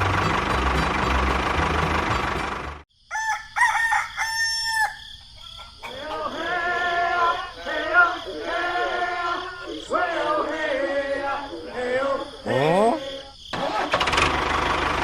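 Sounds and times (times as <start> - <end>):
engine running: 0.0 - 2.8, 13.8 - 15.0
rooster crowing: 3.0 - 9.4.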